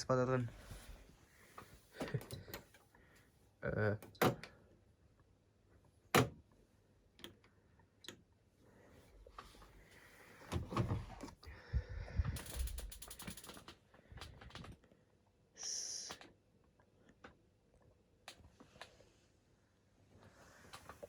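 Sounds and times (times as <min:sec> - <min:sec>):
ratchet-like mechanical clicks: 0:12.4 - 0:13.8.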